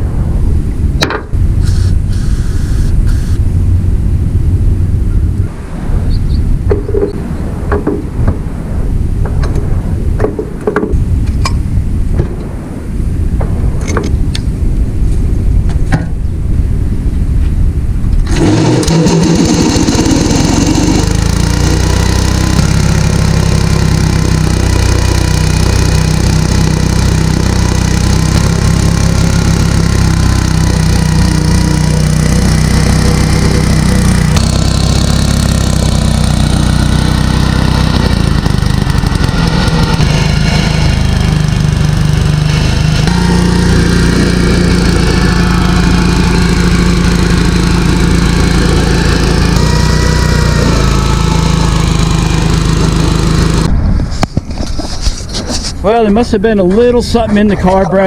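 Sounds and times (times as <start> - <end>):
garden tractor engine running: 18.2 - 53.7.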